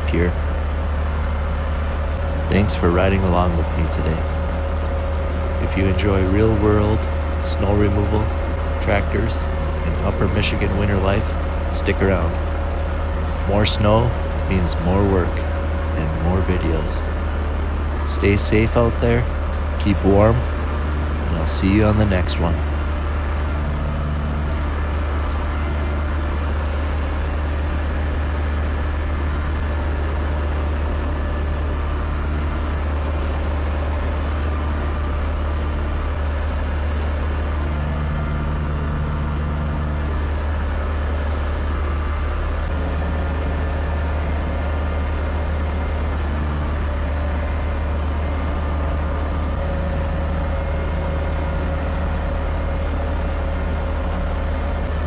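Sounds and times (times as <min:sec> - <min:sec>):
tractor diesel engine droning: 0:00.0 - 0:55.0.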